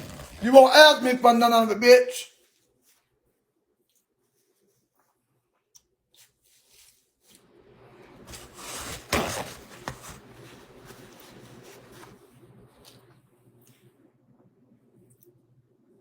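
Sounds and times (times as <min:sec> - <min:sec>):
rustling and rubbing: 0:06.1 - 0:07.4, 0:08.2 - 0:12.2.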